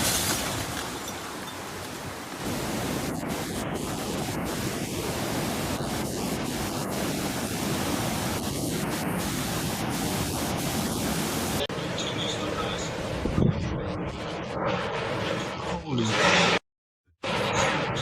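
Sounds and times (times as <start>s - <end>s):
steady rushing noise: 0.0s - 16.6s.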